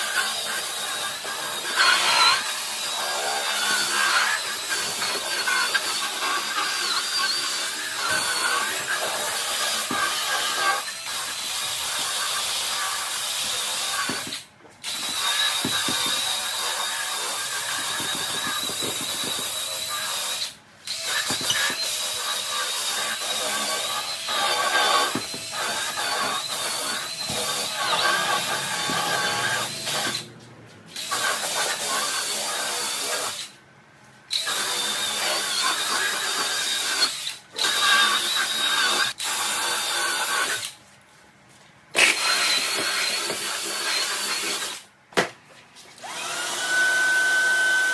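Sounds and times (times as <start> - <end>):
drill motor whining: 0.2 - 33.5, 46.0 - 47.9.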